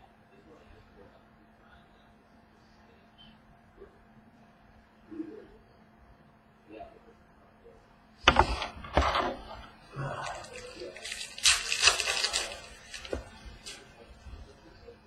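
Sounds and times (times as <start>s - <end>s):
sharp knocks: 8.3s - 9.3s
card pack wrappers crinkling: 10.1s - 14.0s.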